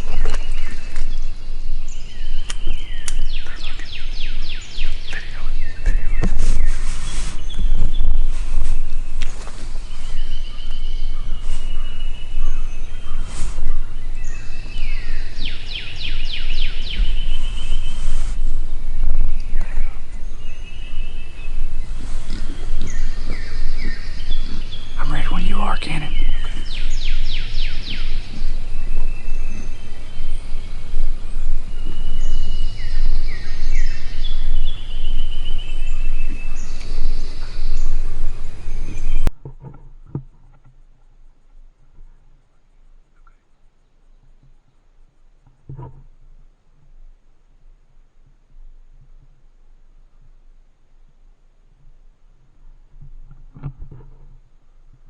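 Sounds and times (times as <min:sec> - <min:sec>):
loud low rumble on microphone: 0:00.0 - 0:39.3
songbirds singing: 0:00.0 - 0:39.3
short whistled bird notes: 0:01.8 - 0:39.3
sharp clicks: 0:02.4 - 0:03.2
bird trill: 0:07.4 - 0:39.3.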